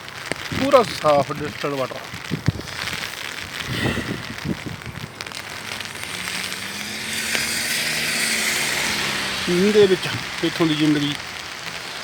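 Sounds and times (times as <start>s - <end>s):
rain pattering: 0.0s - 12.0s
tyres hissing on wet road: 0.0s - 12.0s
vehicle engine hum: 4.0s - 11.6s.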